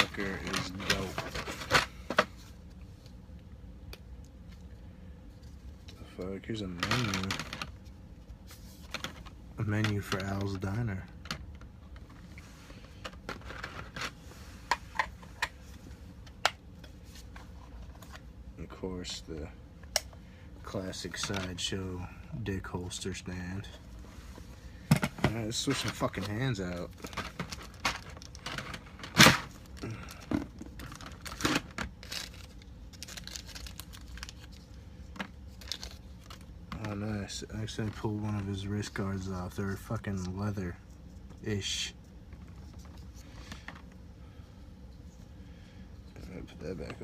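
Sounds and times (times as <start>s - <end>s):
packaging rustling: 25.5s - 37.0s.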